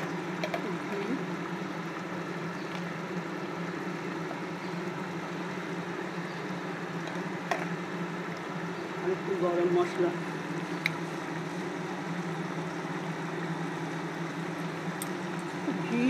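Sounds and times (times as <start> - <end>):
steady low hum: 0.0 - 16.0
curry simmering in a pan: 10.2 - 15.8.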